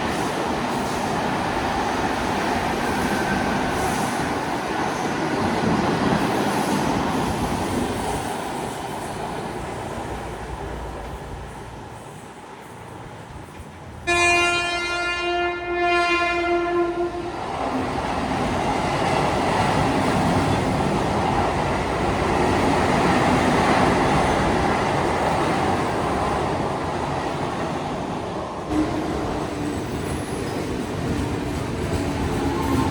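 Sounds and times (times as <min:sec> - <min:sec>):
train wheels rumbling on rails: 0:00.0 - 0:32.9
train horn blast: 0:14.0 - 0:17.4.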